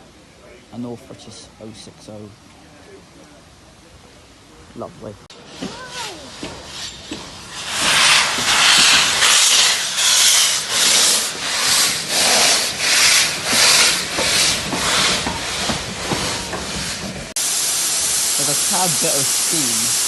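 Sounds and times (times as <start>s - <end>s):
steam locomotive chuffing: 5.3s - 20.0s.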